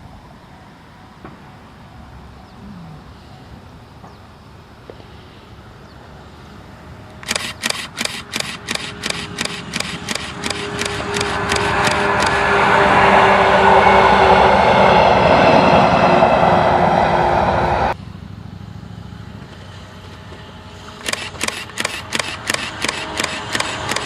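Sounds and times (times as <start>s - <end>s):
faint outdoor background: 0.0s - 24.0s
train running: 5.5s - 24.0s
camera shutter clicking: 7.2s - 12.5s, 21.0s - 24.0s.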